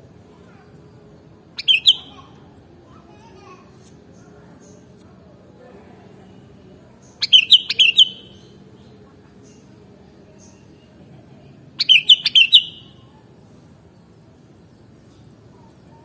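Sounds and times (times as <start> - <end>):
bird singing: 1.0 - 2.5, 7.0 - 9.7, 11.8 - 13.1.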